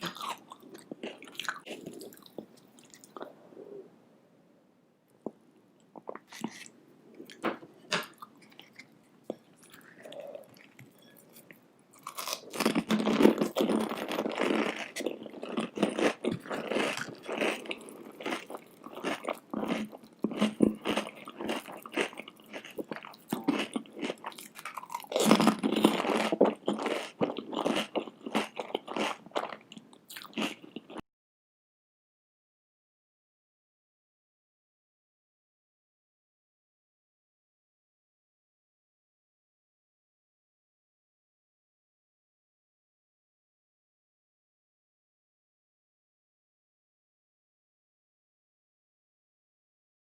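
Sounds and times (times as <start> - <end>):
crunching and chewing food: 0.0 - 3.3, 8.0 - 31.0.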